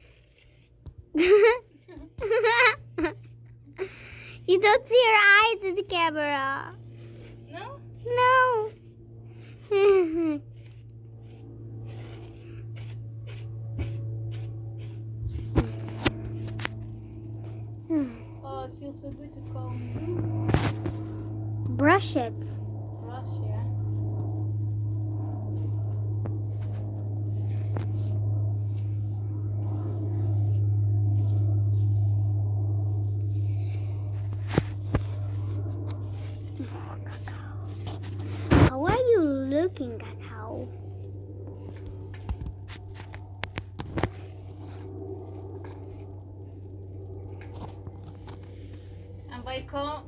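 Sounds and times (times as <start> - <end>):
hairbrush swishing through hair: 0.0 - 21.1, 26.5 - 43.2
loud steady low hum: 0.0 - 50.0.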